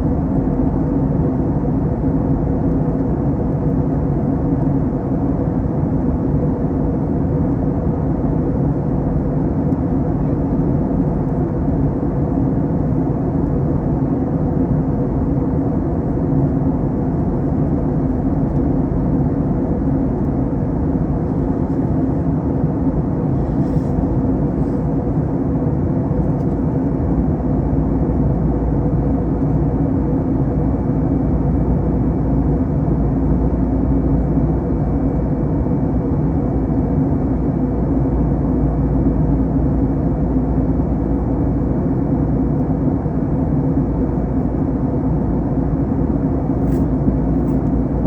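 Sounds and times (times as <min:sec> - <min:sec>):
airplane cabin engine noise: 0:00.0 - 0:48.0.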